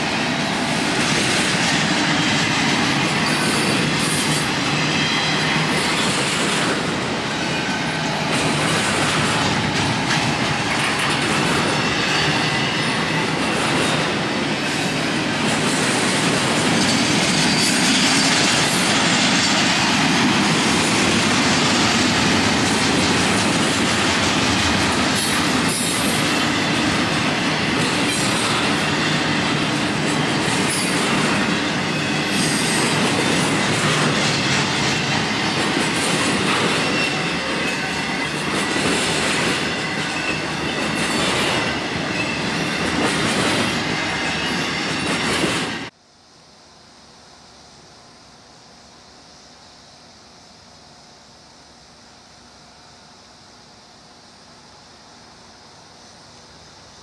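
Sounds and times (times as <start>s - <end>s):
train wheels rumbling on rail: 0.0s - 46.0s
high wheel squeal: 2.0s - 6.4s, 11.6s - 13.5s, 16.7s - 20.2s, 25.2s - 35.6s, 36.5s - 45.9s.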